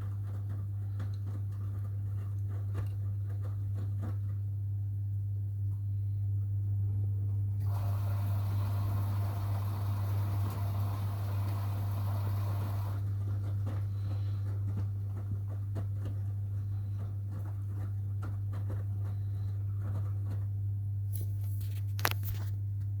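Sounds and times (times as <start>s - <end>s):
washing machines humming: 7.0s - 20.6s.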